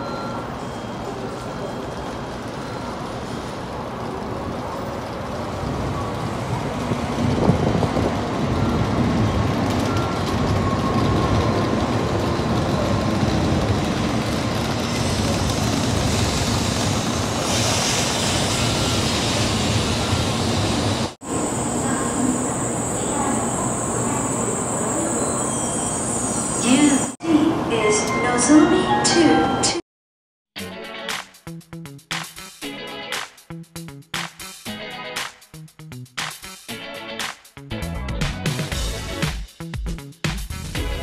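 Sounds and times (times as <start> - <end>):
train wheels rumbling: 2.3 - 27.2
bright braking hiss: 17.4 - 20.1.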